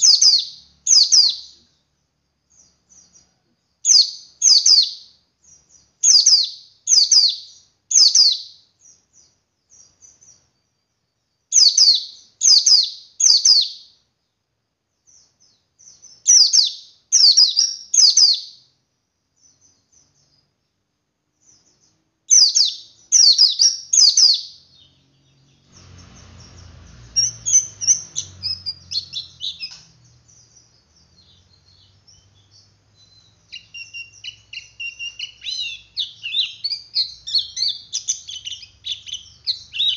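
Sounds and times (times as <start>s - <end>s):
faint low hum: 0.0s - 39.9s
bird chattering twitters: 25.8s - 29.9s, 31.0s - 39.9s
bird calling sharp high notes: 33.0s - 39.9s.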